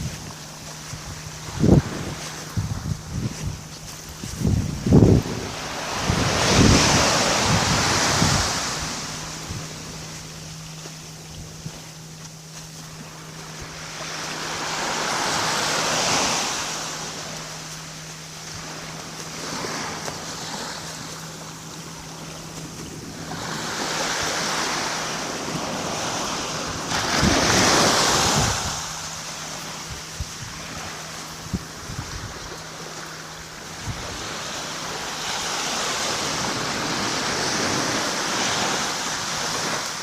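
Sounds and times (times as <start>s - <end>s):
small waves washing onto shore: 0.0s - 40.0s.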